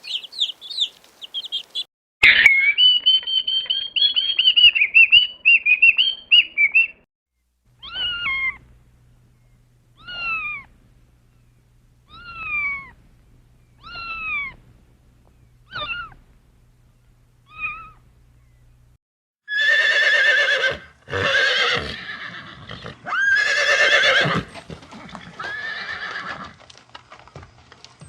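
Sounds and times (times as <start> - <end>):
cat meowing: 7.8 - 8.6, 10.0 - 10.7, 13.8 - 14.6, 15.7 - 16.2, 17.5 - 18.0
horse whinnying: 19.5 - 26.6.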